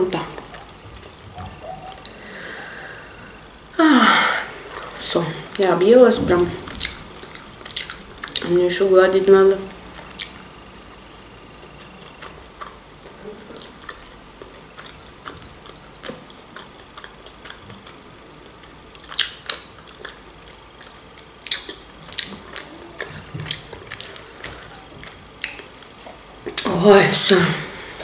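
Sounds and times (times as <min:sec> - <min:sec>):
person chewing and lip smacking: 0:00.3 - 0:03.8, 0:06.2 - 0:08.6, 0:10.0 - 0:26.7.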